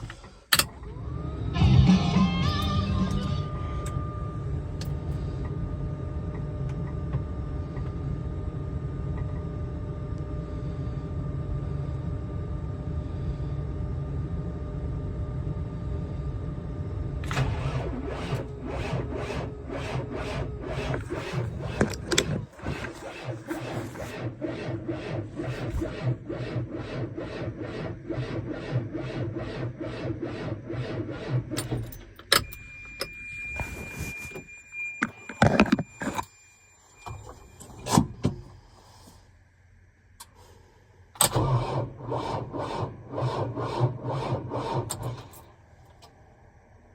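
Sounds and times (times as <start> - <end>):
tractor engine struggling to start: 17.2 - 36.3, 41.2 - 45.5.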